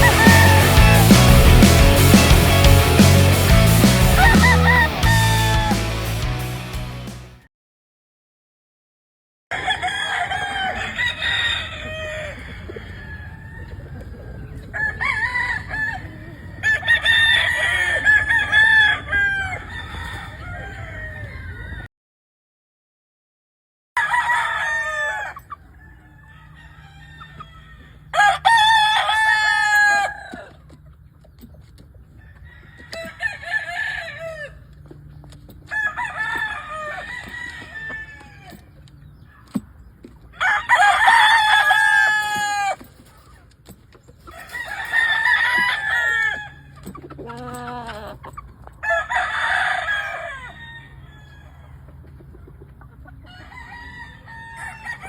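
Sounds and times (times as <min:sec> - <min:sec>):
lower-pitched rooster call: 0:00.0 - 0:02.8, 0:03.9 - 0:06.3
roosters crowing: 0:00.0 - 0:06.8, 0:09.5 - 0:21.9, 0:24.0 - 0:30.8, 0:32.2 - 0:35.0, 0:35.6 - 0:39.6, 0:40.2 - 0:43.3, 0:44.2 - 0:52.1, 0:53.1 - 0:55.0.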